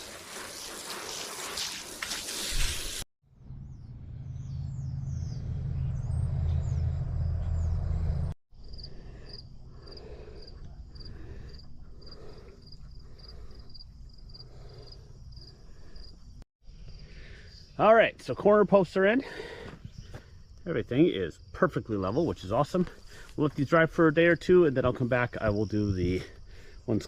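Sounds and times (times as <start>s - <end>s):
low rumble: 3.3s - 9.8s
bird chirps: 3.4s - 8.0s
crickets chirping: 8.5s - 27.0s.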